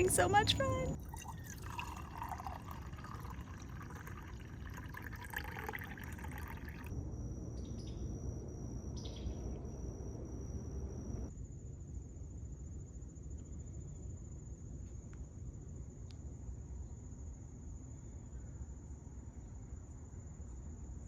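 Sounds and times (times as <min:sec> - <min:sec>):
water trickling: 0:00.0 - 0:06.9.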